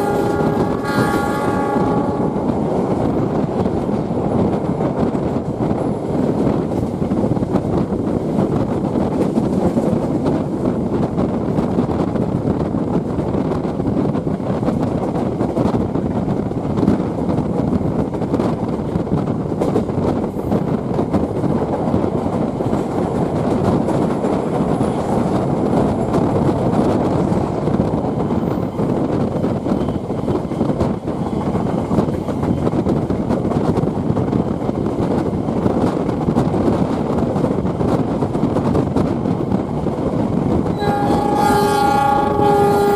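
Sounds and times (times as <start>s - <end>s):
train carriage noise: 0.0s - 42.9s
train wheels rumbling on rails: 0.0s - 42.9s.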